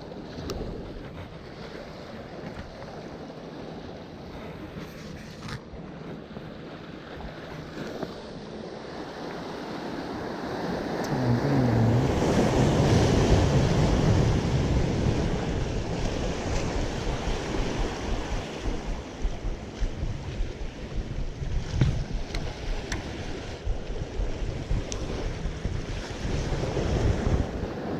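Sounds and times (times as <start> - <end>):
ocean wave breaking: 0.1 - 27.9
wind buffeting microphone: 10.5 - 27.9.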